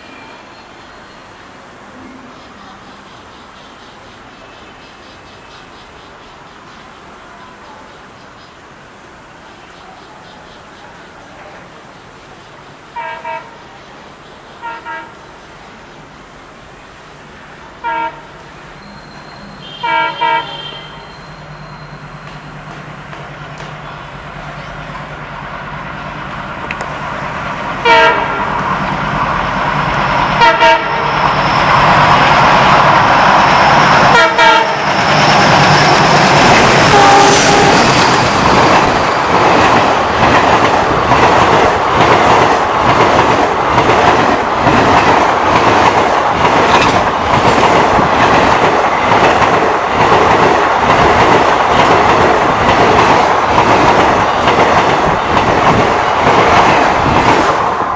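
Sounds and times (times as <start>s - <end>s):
diesel locomotive engine rumble: 0.0s - 57.9s
train horn blasts: 13.0s - 13.6s, 14.6s - 15.2s, 17.8s - 21.9s, 27.8s - 28.6s, 30.4s - 31.2s, 34.1s - 34.9s, 36.8s - 38.2s
train wheels clickety-clack: 22.2s - 24.0s, 34.8s - 57.9s.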